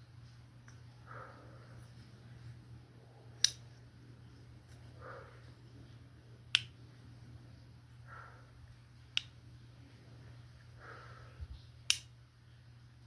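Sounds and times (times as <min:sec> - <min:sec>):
sharp snaps: 0:03.4 - 0:03.7, 0:06.5 - 0:06.8, 0:09.1 - 0:09.4, 0:11.8 - 0:12.2.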